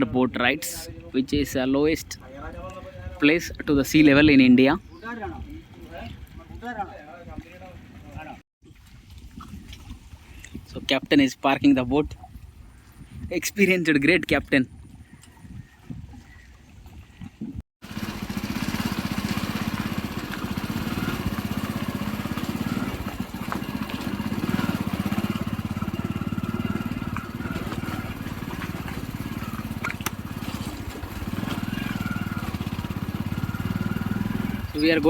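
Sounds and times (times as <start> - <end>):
vehicle engine running: 17.8 - 35.0.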